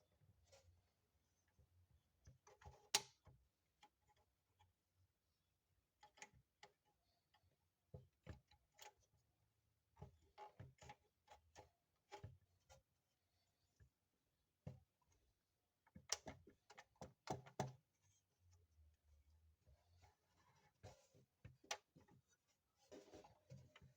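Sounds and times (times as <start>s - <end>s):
small clicks and taps: 15.9s - 17.9s.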